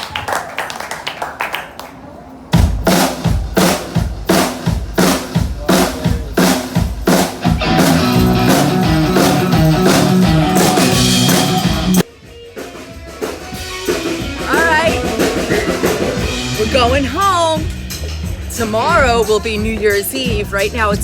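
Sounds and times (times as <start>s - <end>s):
bass drum and snare beat: 2.6s - 12.1s
live band playing: 2.6s - 21.0s.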